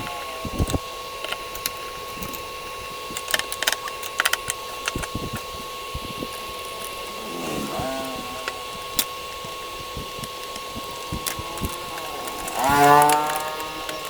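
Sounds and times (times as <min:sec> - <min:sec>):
small tools clicking and knocking: 0:03.1 - 0:05.6, 0:06.2 - 0:14.0
high-pitched hum: 0:05.2 - 0:14.0.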